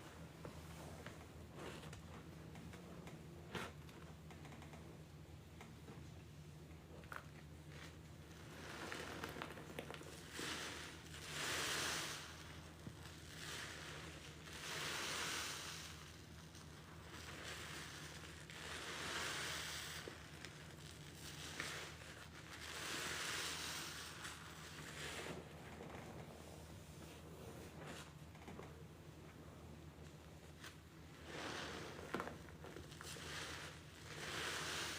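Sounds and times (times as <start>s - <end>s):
sponge squeezed with water streaming: 8.4s - 25.4s, 31.2s - 34.9s.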